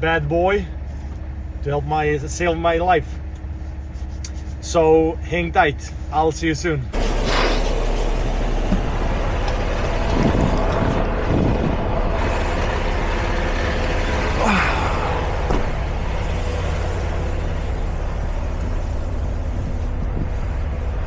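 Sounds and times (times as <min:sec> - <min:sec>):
truck engine and road noise: 0:00.0 - 0:21.0
short sweeping noises: 0:06.9 - 0:08.6.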